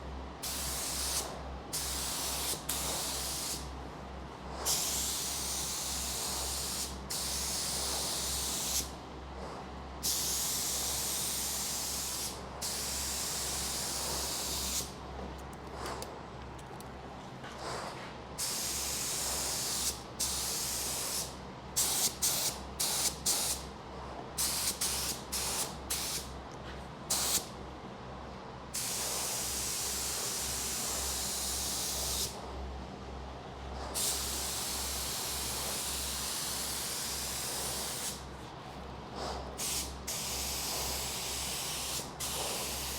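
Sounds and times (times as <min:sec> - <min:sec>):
spray gun hissing: 0:00.4 - 0:03.7, 0:04.7 - 0:08.9, 0:10.0 - 0:14.9, 0:18.4 - 0:23.6, 0:24.4 - 0:26.3, 0:28.8 - 0:32.4, 0:34.0 - 0:38.2, 0:39.6 - 0:42.9.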